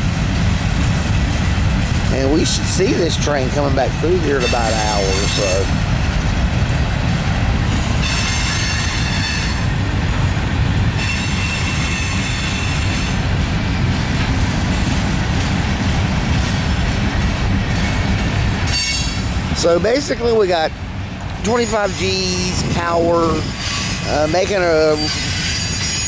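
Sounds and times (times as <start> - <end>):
freight train wheels rumbling: 0.0 - 26.0
wheel squeal: 8.0 - 9.7, 11.0 - 13.2, 18.7 - 19.3, 23.2 - 26.0.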